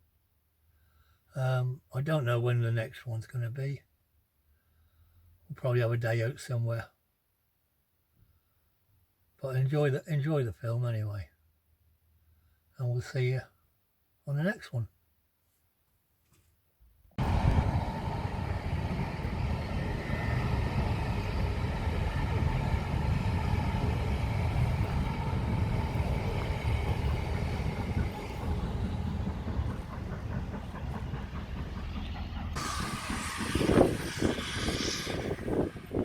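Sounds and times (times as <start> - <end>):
train rumbling: 17.2 - 36.0.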